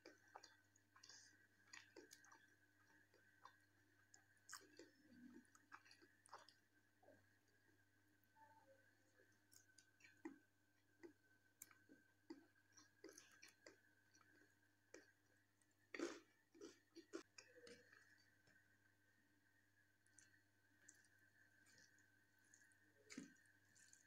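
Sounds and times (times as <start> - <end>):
chewing: 0.0 - 6.7, 11.0 - 18.6, 20.0 - 24.0
faint steady hum: 0.0 - 24.0.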